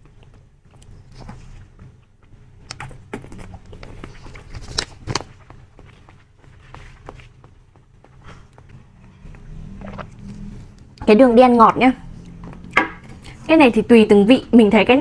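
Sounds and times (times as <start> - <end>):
chewing soft jelly snack: 0.0 - 5.1.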